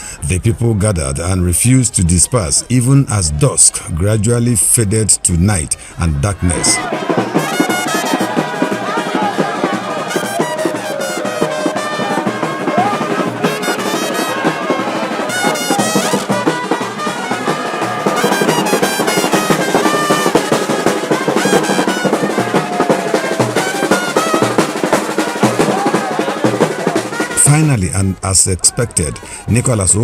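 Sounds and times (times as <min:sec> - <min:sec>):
drum beat with snare rolls: 0:06.5 - 0:27.7
trumpets playing: 0:06.5 - 0:27.8.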